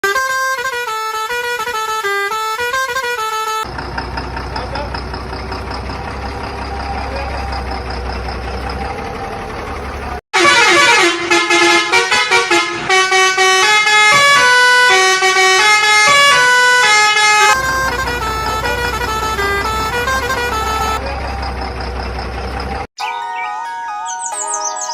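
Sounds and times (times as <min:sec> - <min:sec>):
tune of horn-like tones: 0:00.0 - 0:03.7, 0:10.4 - 0:21.0
engine-like hum: 0:02.7 - 0:10.2, 0:16.6 - 0:22.9.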